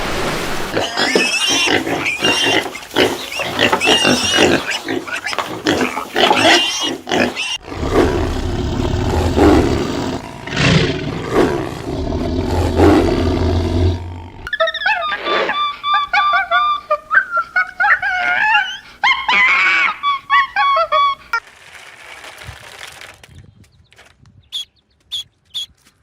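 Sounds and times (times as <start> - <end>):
low growling roars: 7.6 - 14.5.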